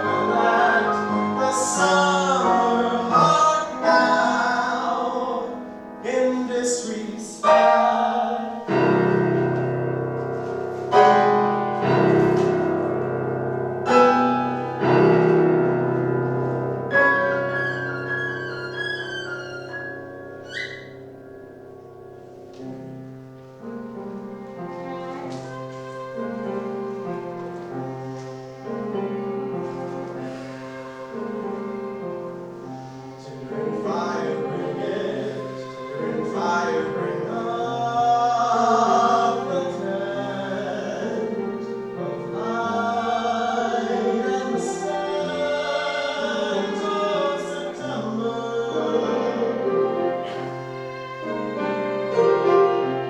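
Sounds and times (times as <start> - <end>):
voices singing in harmony: 0.0 - 9.2, 30.1 - 53.0.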